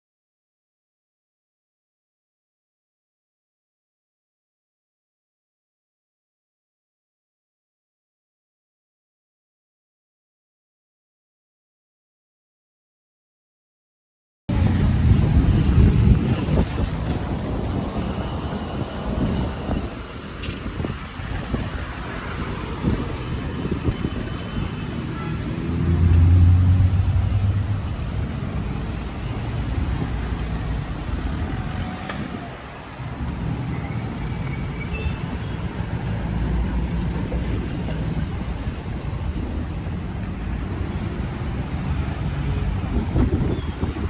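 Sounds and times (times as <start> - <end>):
street traffic: 14.5 - 44.0
engine passing close by: 21.2 - 38.7.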